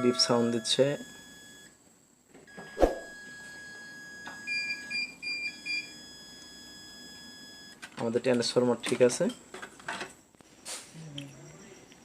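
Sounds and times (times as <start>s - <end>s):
multimeter continuity tone: 0.0s - 7.8s.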